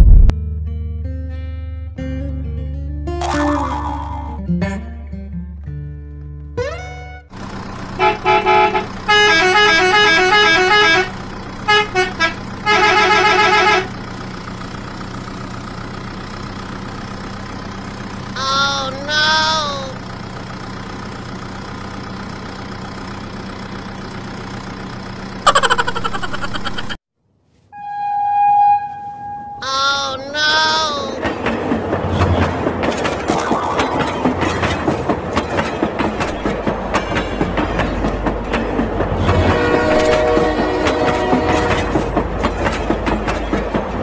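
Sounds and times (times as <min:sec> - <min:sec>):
truck engine drone: 0:00.0 - 0:44.0
pulsing multi-tone horn: 0:08.0 - 0:14.0, 0:27.8 - 0:31.2, 0:39.2 - 0:42.2
short wavering tones: 0:27.7 - 0:30.8.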